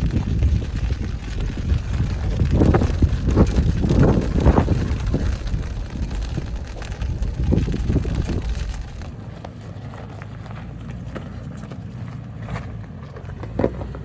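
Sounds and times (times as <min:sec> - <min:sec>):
wind buffeting microphone: 0:00.0 - 0:09.3
vehicle rumble on rough trail: 0:00.0 - 0:14.0.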